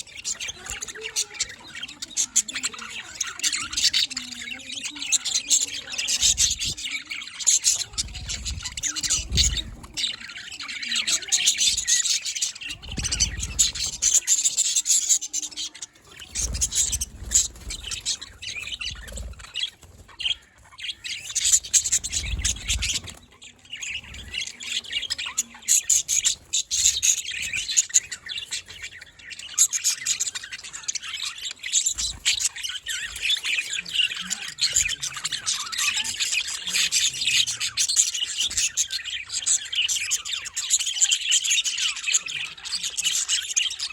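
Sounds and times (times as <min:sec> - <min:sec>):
budgerigars chattering: 0:00.0 - 0:43.9.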